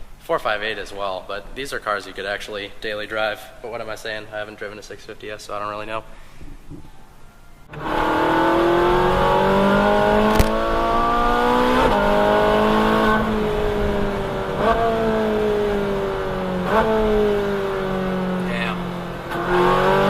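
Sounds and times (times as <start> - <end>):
gear changes: 7.6 - 20.0
car engine accelerating: 7.7 - 20.0.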